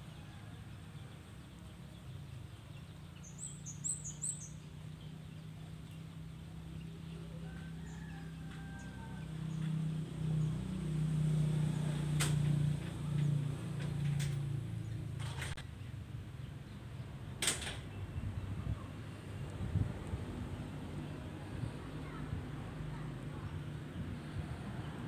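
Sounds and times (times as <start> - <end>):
bird chirping: 0.0 - 8.4.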